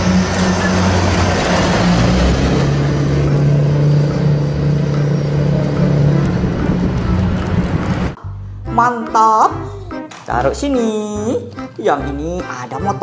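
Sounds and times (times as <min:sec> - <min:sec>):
bus engine running: 0:00.0 - 0:08.2.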